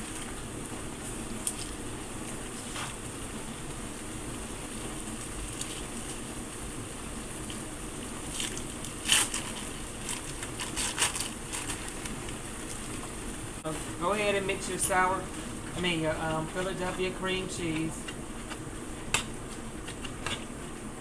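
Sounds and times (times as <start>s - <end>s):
chicken sizzling in a skillet: 0.0s - 15.6s.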